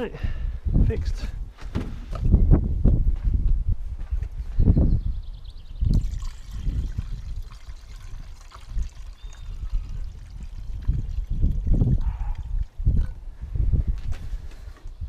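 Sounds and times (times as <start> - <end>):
water pouring into coolant tank: 5.9 - 12.8.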